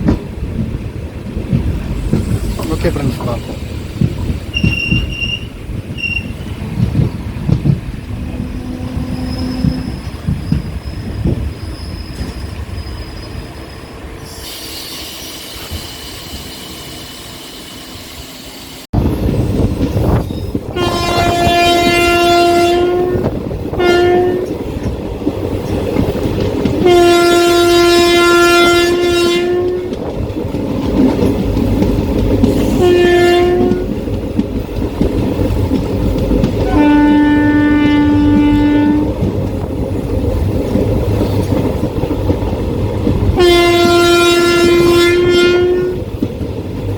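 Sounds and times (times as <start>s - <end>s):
train running along track: 0.0s - 46.9s
train horn blasts: 8.1s - 10.2s, 20.7s - 24.6s, 26.8s - 30.0s, 32.6s - 33.9s, 36.6s - 39.2s, 43.4s - 46.1s.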